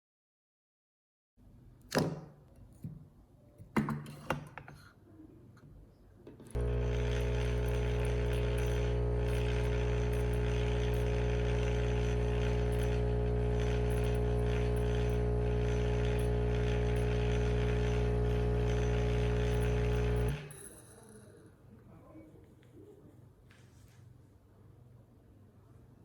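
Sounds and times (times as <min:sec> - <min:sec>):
coffee machine pump buzzing: 0:06.6 - 0:20.8.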